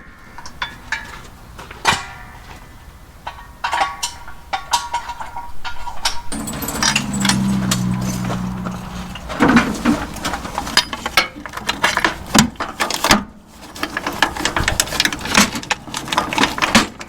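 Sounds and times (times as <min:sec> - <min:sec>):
hand tools clinking on metal: 0:06.4 - 0:09.2
steady low hum: 0:06.4 - 0:10.7.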